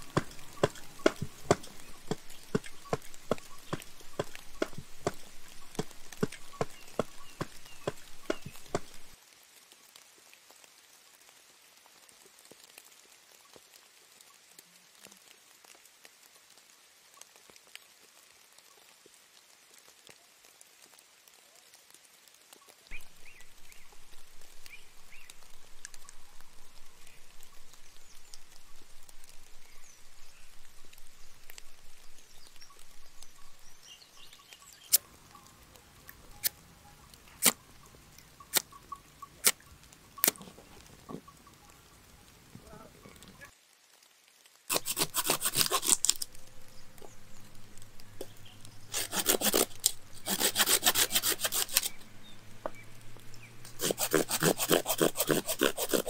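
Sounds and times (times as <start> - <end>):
faint rain patter: 0.0 - 54.2.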